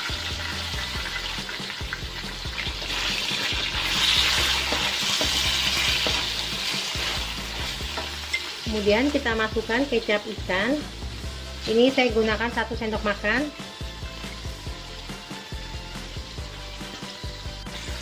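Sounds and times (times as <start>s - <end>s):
food sizzling in hot oil: 0.0s - 18.0s
spatula scraping wok: 2.2s - 9.7s.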